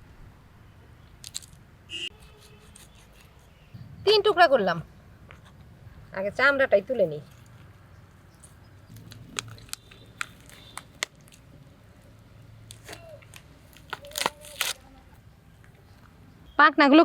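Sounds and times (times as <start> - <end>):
skin tearing off carcass: 12.7 - 14.9.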